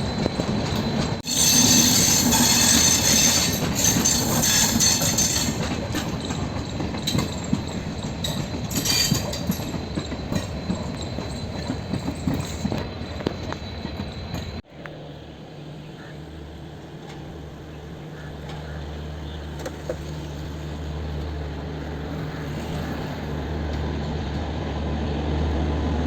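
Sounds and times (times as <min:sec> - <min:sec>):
rail clatter: 0:00.0 - 0:14.6
train rumbling on track: 0:00.0 - 0:26.0.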